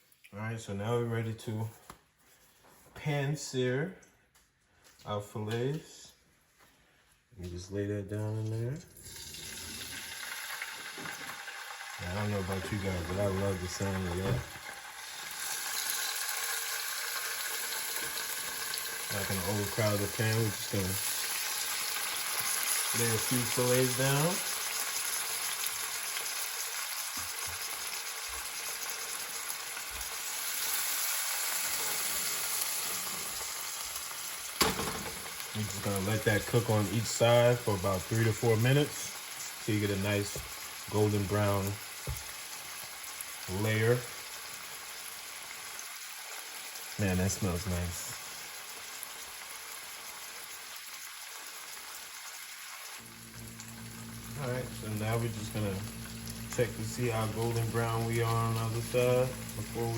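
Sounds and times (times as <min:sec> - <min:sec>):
fish sizzling in a hot pan: 0:09.0 - 0:59.9
low steady hum: 0:53.0 - 0:59.9.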